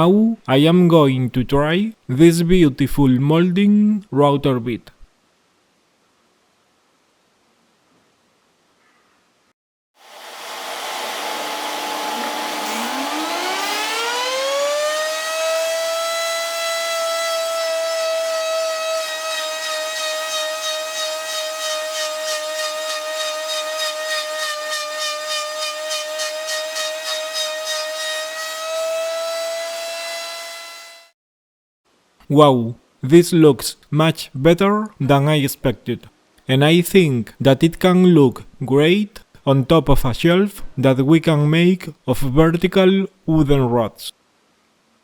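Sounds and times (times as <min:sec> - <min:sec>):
router motor whine: 0:10.0 - 0:31.1
wooden rod against router bit: 0:10.3 - 0:14.3, 0:18.0 - 0:29.8.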